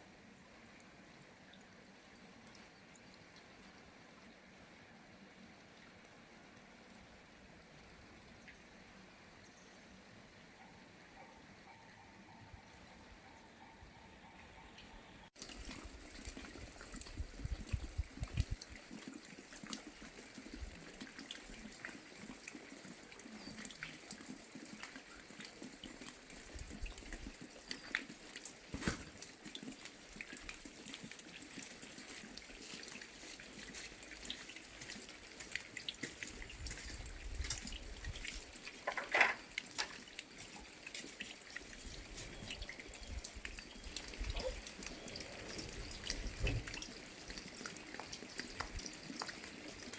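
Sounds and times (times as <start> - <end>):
rain falling: 15.4 - 49.9.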